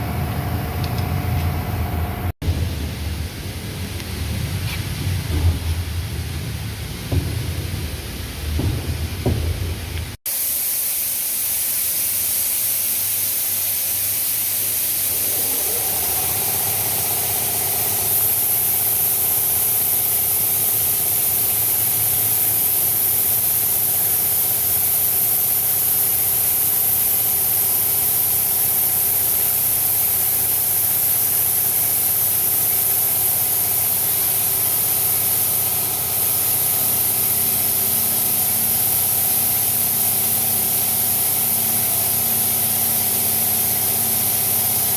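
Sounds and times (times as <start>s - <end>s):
air hissing: 6.8s - 44.9s
engine running: 14.2s - 22.1s
mid-pitched tone: 14.9s - 19.0s.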